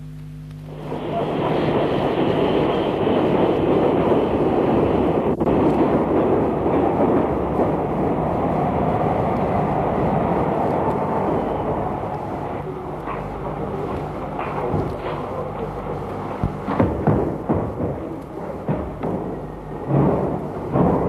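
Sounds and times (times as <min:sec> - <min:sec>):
steam train running past: 0:00.7 - 0:21.0.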